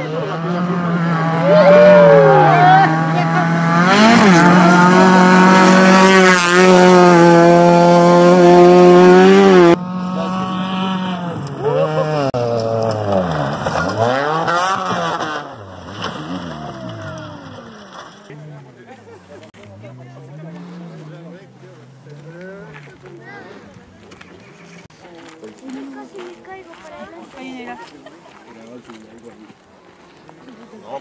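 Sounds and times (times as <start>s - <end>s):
rally car engine at high revs: 0.0s - 23.0s
rally car engine revving: 0.0s - 24.9s.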